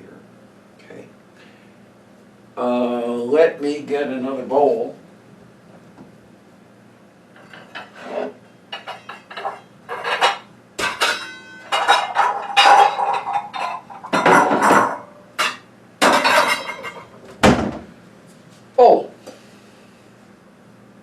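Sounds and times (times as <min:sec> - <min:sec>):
dishes clattering together: 0:07.4 - 0:17.6.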